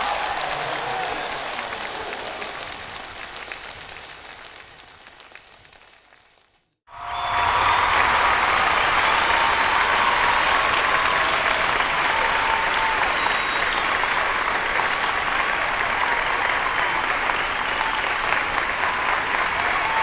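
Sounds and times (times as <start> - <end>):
crowd cheering: 0.0 - 5.8, 6.9 - 20.0
crowd clapping: 0.0 - 20.0.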